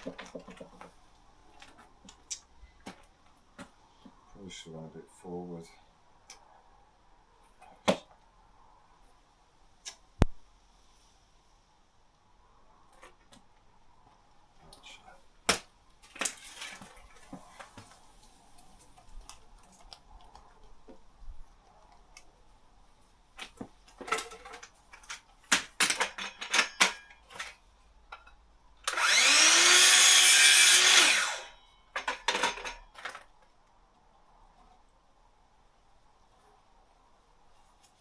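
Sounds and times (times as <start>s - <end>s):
wood and tools clattering: 0.0s - 1.0s, 15.5s - 18.0s, 23.4s - 33.4s
power drill running: 28.8s - 31.6s.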